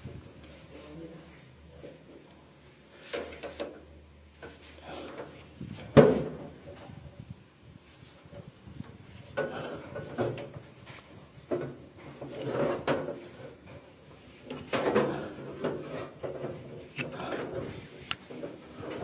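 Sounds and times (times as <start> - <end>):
wire scraping through conduit: 8.0 - 19.0.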